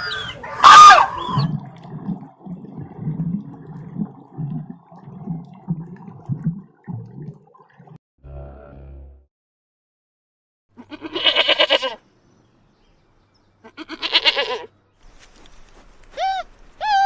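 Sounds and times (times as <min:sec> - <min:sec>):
rising and falling animal calls: 0:00.0 - 0:01.7.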